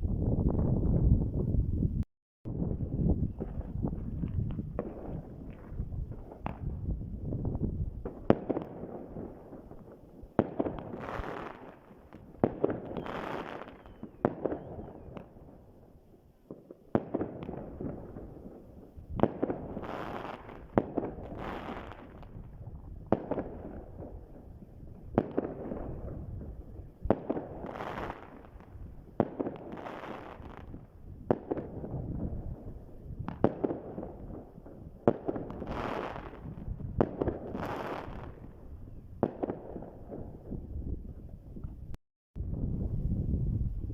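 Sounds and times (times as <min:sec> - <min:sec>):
fireworks banging and crackling: 0:02.5 - 0:41.8.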